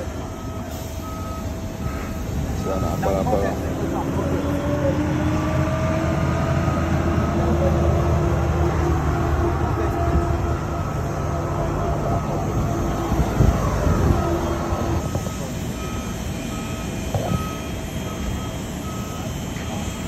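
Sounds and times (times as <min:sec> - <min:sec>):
vehicle engine low rumble: 0:00.0 - 0:20.0
short high beeps: 0:13.9 - 0:19.3.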